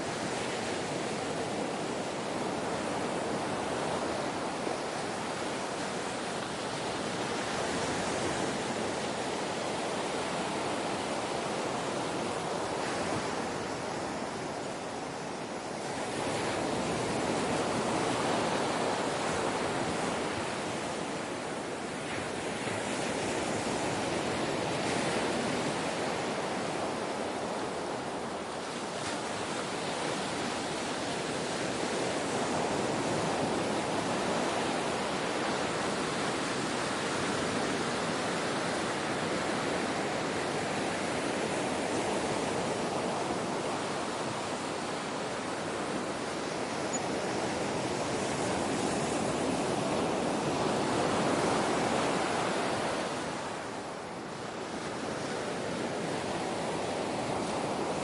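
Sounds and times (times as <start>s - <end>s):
ocean waves washing ashore: 0.0s - 58.0s.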